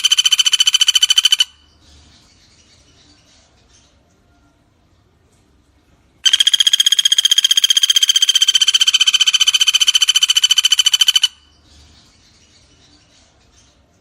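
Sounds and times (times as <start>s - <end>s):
woodpecker rattling trill: 0.0s - 1.7s, 6.2s - 11.5s
faint bird chirps: 0.0s - 5.6s, 6.2s - 14.0s.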